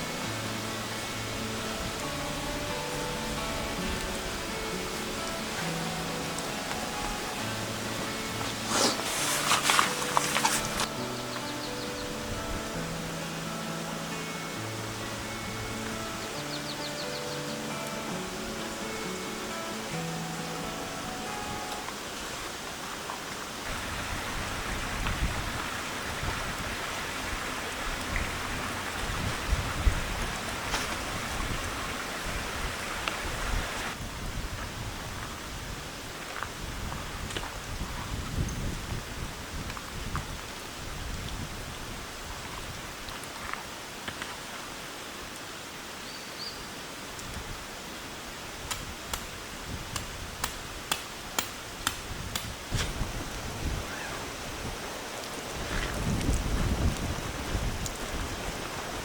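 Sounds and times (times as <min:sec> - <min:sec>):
rain falling: 0:00.0 - 0:59.0
gusting wind rumble: 0:23.6 - 0:43.1, 0:47.3 - 0:59.0.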